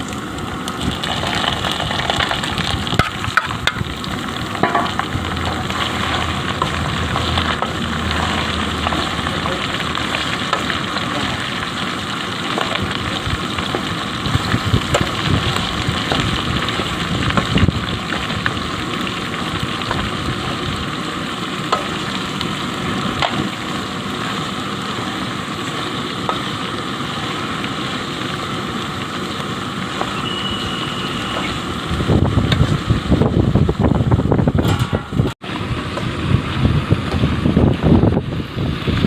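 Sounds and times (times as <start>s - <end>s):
chicken sizzling in a pan: 0.0s - 33.5s.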